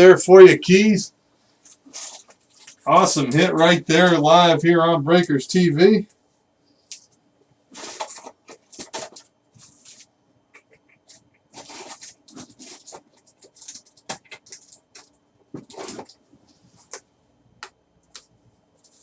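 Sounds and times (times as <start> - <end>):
cards and plastic rustling: 1.6 - 4.2, 7.7 - 17.0, 18.0 - 19.0.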